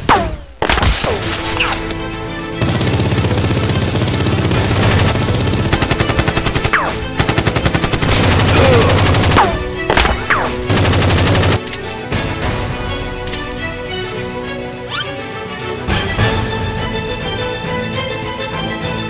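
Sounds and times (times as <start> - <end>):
background music: 0.1 - 19.0
rapid automatic gunfire: 2.6 - 9.5, 10.3 - 11.7.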